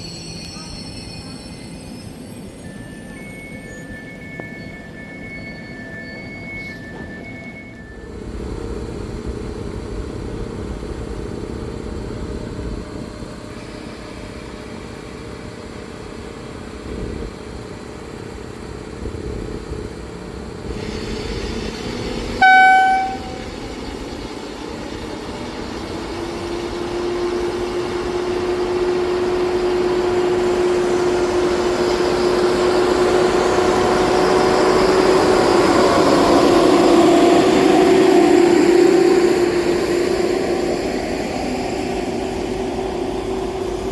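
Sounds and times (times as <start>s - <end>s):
rumble of train wheels: 0.0s - 43.9s
train approaching: 0.0s - 43.9s
train horn blast: 22.4s - 23.8s.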